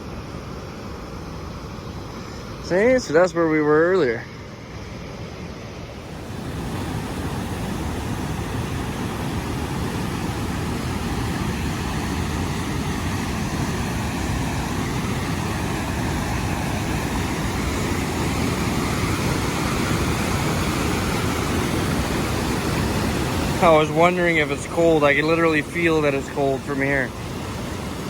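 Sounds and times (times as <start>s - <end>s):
waterfall roaring: 5.9s - 28.0s.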